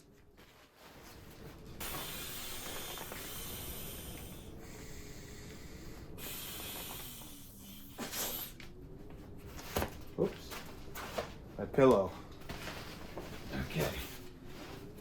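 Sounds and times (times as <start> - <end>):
sleeping bag fabric rustling: 9.6 - 15.0.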